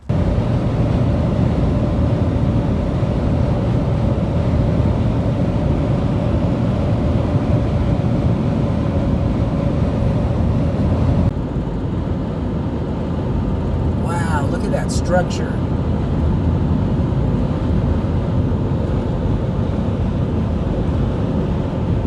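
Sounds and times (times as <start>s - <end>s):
road and engine noise: 0.0s - 22.0s
faint steady hum: 13.8s - 15.7s.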